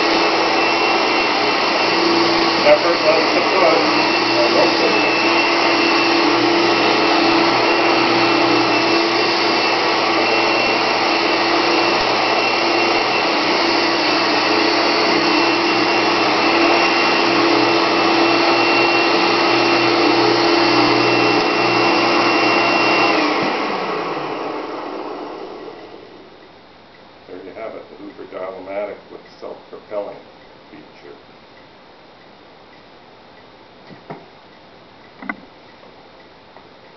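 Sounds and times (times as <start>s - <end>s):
upright vacuum cleaner running: 0.0s - 26.4s.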